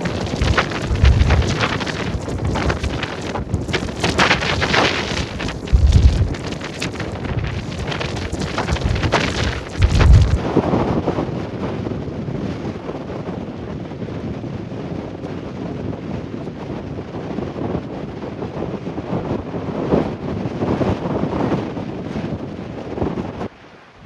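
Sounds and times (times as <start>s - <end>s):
waves breaking on shore: 0.0s - 10.5s
high wind across microphone: 0.0s - 23.5s.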